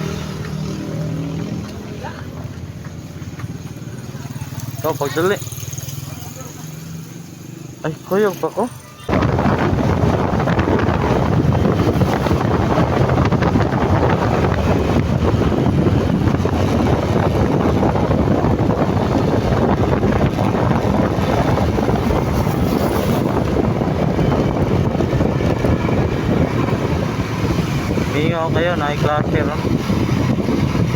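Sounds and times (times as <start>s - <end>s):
motorcycle engine: 0.0s - 30.9s
wind buffeting microphone: 9.1s - 30.9s.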